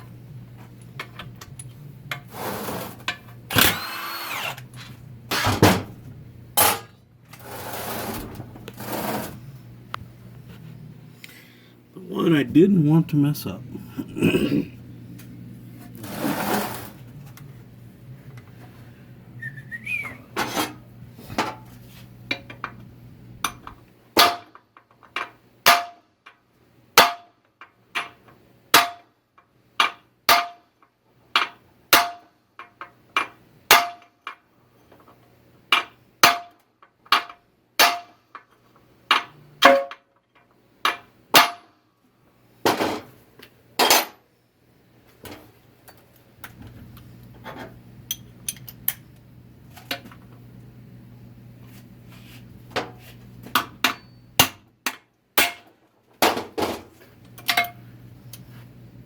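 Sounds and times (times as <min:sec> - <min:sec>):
hammer striking steel: 0:41.4 - 0:41.7, 0:53.8 - 0:55.7.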